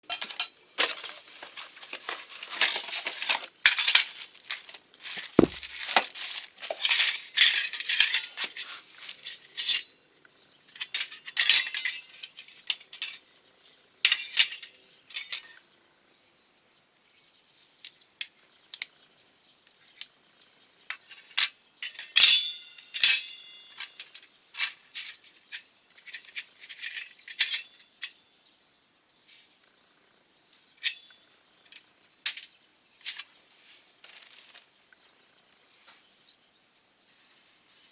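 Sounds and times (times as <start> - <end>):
dull thump: 5.3 - 5.8.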